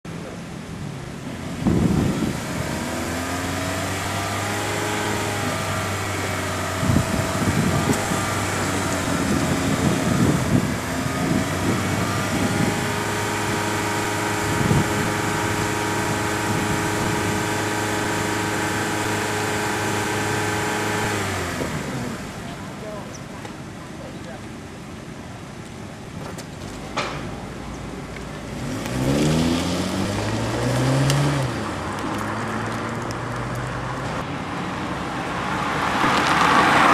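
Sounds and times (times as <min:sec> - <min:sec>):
car engine revving: 0:01.0 - 0:23.1, 0:28.4 - 0:36.9.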